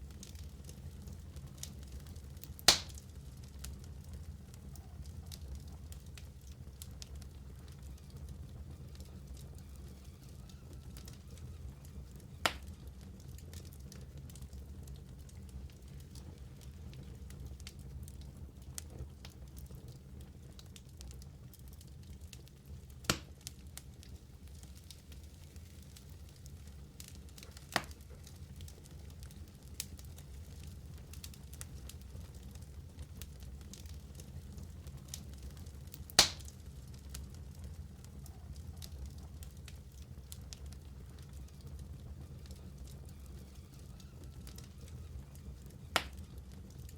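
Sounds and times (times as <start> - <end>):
low rumble of flames: 0.0 - 46.9
wood fire crackling: 0.0 - 46.9
loud sharp pop: 2.7 - 3.0, 36.2 - 36.4
sharp pop from fire: 2.7 - 3.0, 12.4 - 12.7, 23.1 - 23.3, 36.1 - 36.5, 45.9 - 46.2.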